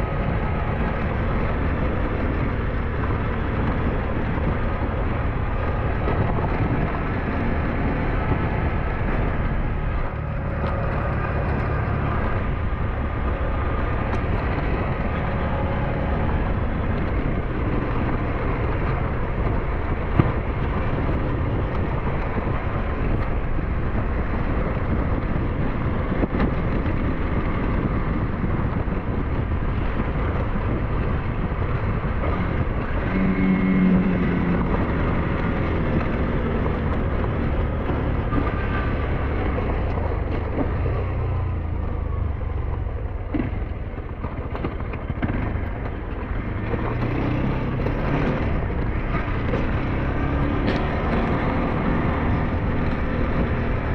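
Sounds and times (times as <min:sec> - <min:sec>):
motorbike engine running: 0:00.0 - 0:53.9
wind buffeting microphone: 0:00.0 - 0:53.9.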